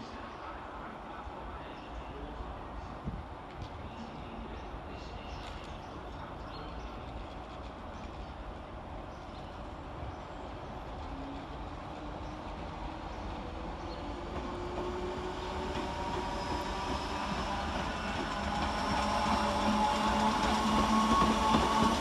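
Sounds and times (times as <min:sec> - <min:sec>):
electric train rumbling: 0:04.7 - 0:22.0.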